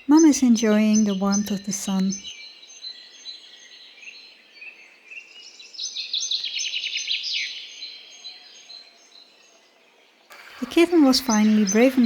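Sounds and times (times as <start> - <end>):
songbirds singing: 0.0 - 12.0
bird's rapid descending run: 10.3 - 12.0
high bird chirps: 10.3 - 12.0.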